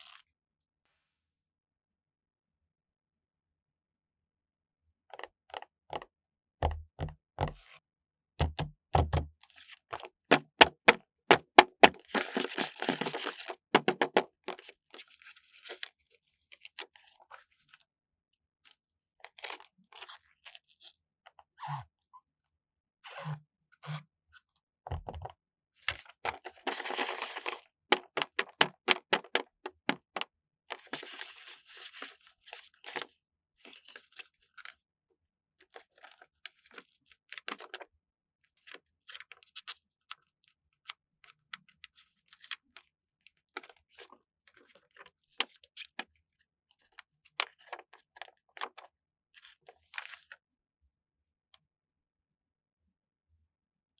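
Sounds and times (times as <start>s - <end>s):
sticker sheets crackling: 10.3s - 14.6s, 26.4s - 30.2s.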